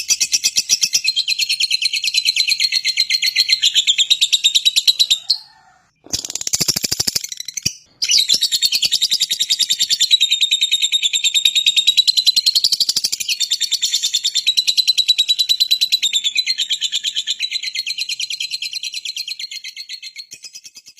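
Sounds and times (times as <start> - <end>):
songbird trilling: 2.2 - 10.0
bird rattling call: 6.1 - 7.6.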